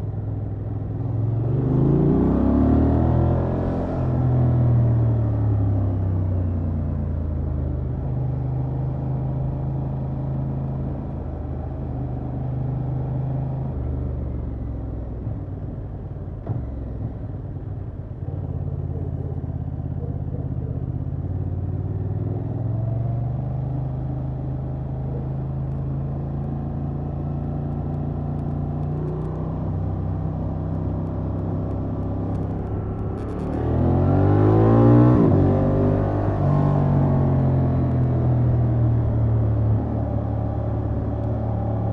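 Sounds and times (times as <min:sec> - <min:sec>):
motorcycle engine running: 0:25.0 - 0:34.6.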